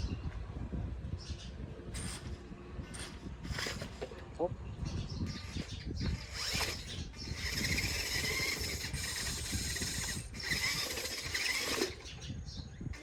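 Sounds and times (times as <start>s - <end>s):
rc truck motor whining: 2.9s - 4.1s, 5.0s - 13.0s.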